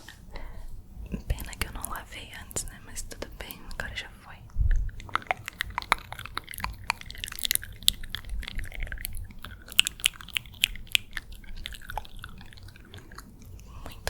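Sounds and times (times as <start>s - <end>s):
wet mouth clicks and smacks: 4.4s - 14.0s.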